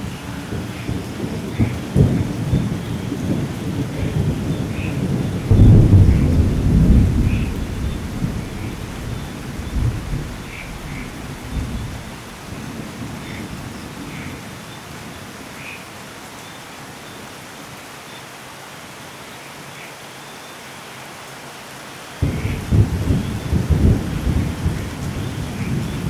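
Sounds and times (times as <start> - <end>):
rolling thunder rumble: 0.0 - 14.5, 22.2 - 26.0
steady rainfall: 0.0 - 26.0.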